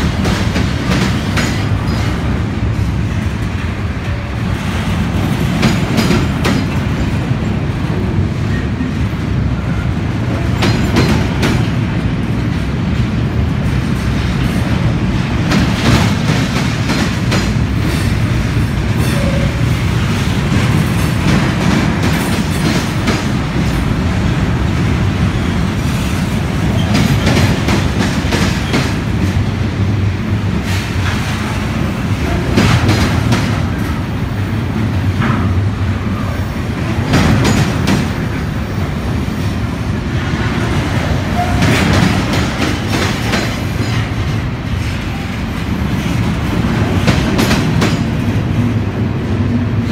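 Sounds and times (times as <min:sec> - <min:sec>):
wheels clickety-clack: 0:00.0 - 0:02.3, 0:04.8 - 0:07.4, 0:10.4 - 0:12.7, 0:25.8 - 0:29.4
train wheels rumbling on rail: 0:00.0 - 0:49.9.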